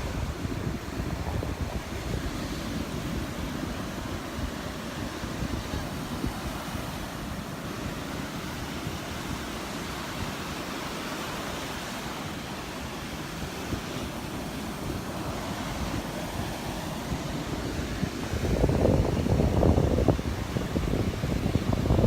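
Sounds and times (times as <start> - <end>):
surf washing onto beach: 0.0 - 22.0
wind buffeting microphone: 0.0 - 22.0.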